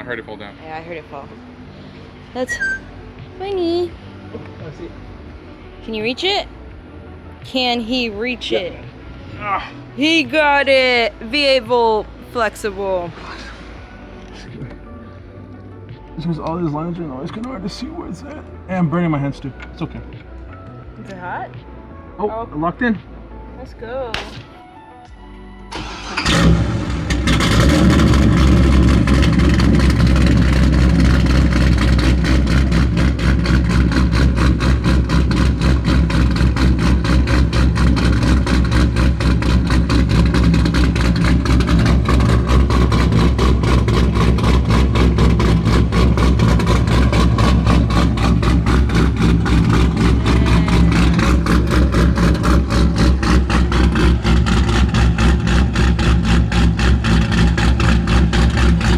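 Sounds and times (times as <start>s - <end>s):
car engine starting and idling: 0.0s - 58.9s.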